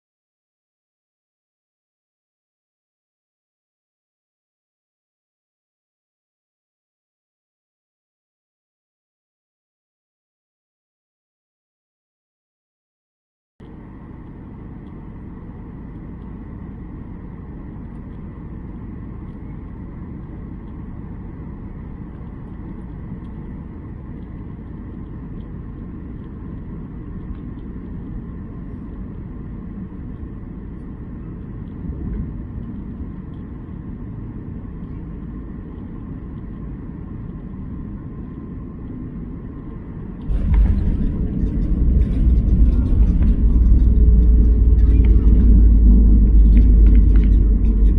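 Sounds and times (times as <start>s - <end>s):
faint high whine: 13.6s - 47.9s
jet engine and airflow rumble: 13.6s - 47.9s.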